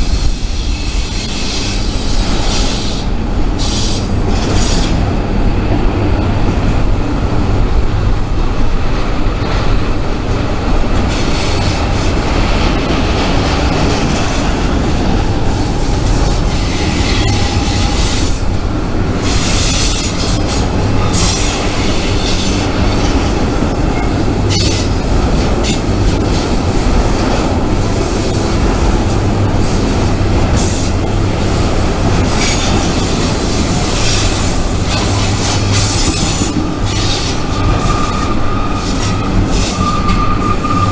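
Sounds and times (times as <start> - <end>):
freight train rumbling: 0.0 - 40.9
rail clatter: 0.0 - 40.9
wheel squeal: 15.8 - 18.6, 19.2 - 26.5, 31.6 - 40.9.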